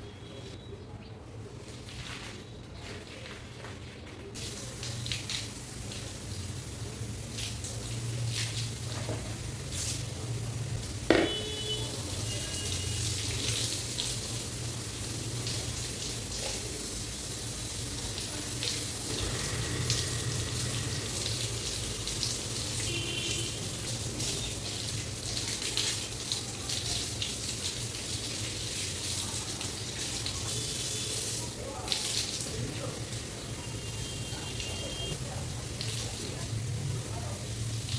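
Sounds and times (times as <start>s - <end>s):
tap water splashing on hair: 7.3s - 10.1s, 11.0s - 14.4s
sharp knock: 11.1s - 11.5s.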